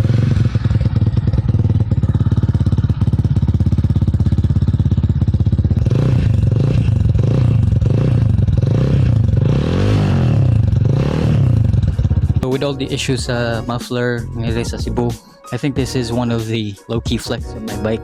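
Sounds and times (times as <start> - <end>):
motorcycle engine revving: 0.0 - 13.8.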